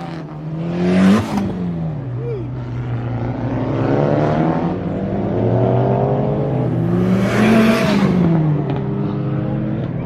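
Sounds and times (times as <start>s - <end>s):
drone of car engines: 0.0s - 10.0s
car accelerating past: 2.9s - 9.9s.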